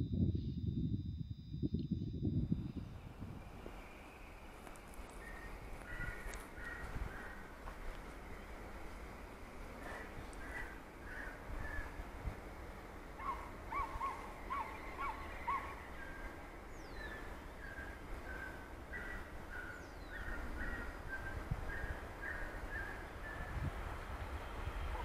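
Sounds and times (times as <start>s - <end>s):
low wind rumble: 0.0s - 25.0s
small birds calling: 3.8s - 12.1s, 13.1s - 23.7s.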